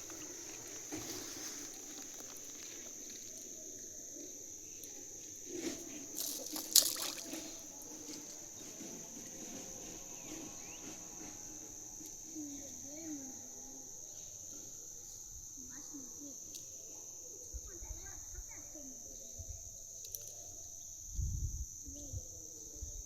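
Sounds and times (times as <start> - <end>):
crickets chirring: 0.0 - 23.0
sharp noises: 6.1 - 7.8.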